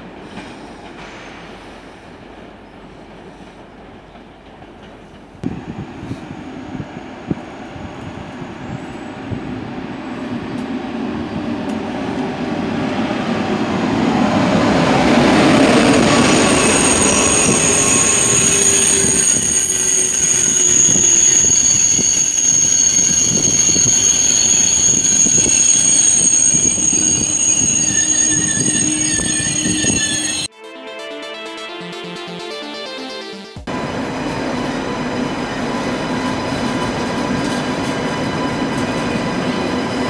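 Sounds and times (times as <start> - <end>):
trains rolling rumble: 0.0 - 30.5, 33.7 - 40.0
high-pitched wheel squeal: 15.8 - 30.5.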